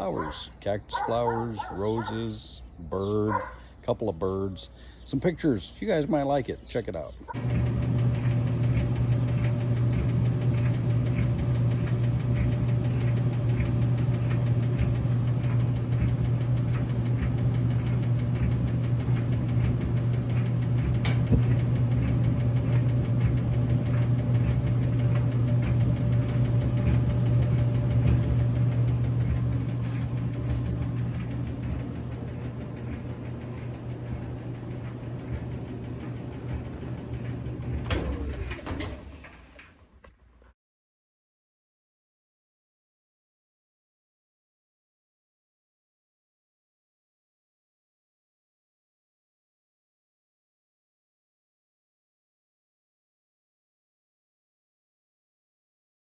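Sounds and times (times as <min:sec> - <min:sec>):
gas dryer running: 0:00.0 - 0:02.2, 0:07.3 - 0:39.8.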